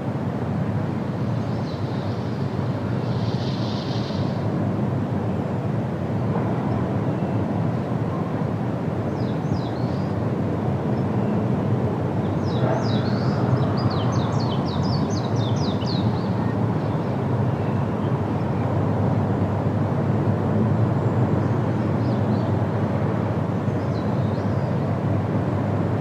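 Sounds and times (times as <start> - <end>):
wind through foliage: 0.0 - 26.0
songbird singing: 12.2 - 18.7, 23.6 - 24.9.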